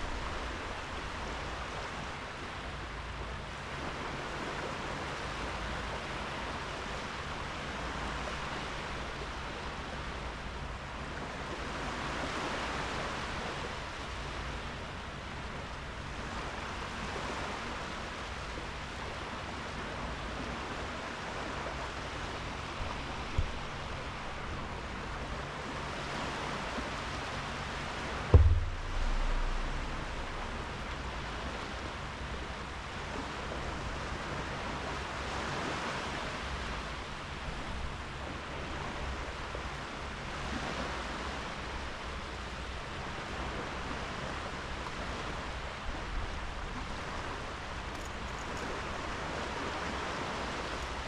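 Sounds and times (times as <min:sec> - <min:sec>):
waves washing onto beach: 0:00.0 - 0:51.0
low rumble: 0:28.1 - 0:32.5
brief low thump: 0:28.3 - 0:31.0.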